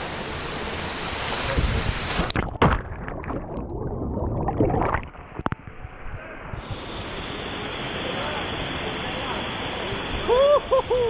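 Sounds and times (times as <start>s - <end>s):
muffled underwater gurgling: 2.3s - 5.6s.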